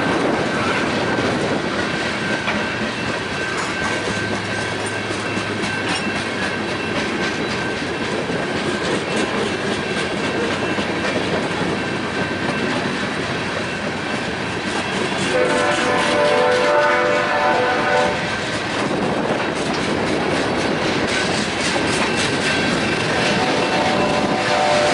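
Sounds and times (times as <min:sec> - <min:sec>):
train wheels clacking over rails: 0:00.0 - 0:24.9
locomotive horn: 0:15.2 - 0:18.4, 0:23.2 - 0:24.9.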